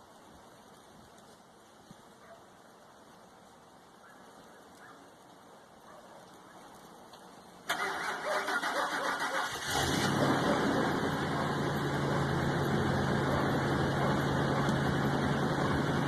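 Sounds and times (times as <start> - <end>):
starter motor cranking: 7.7 - 10.3
truck engine running: 7.8 - 16.0.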